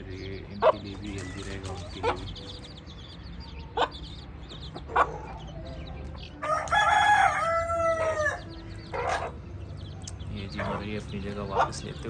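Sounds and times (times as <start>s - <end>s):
rooster crowing: 6.4s - 9.3s.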